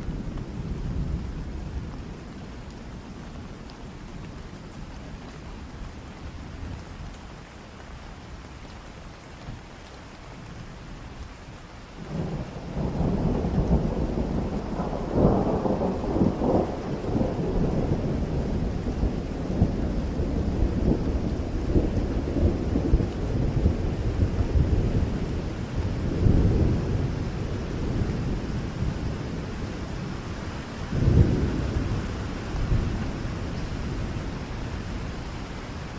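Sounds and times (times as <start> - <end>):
steady rain: 0.0 - 35.9
thunder rumbling: 12.0 - 35.9.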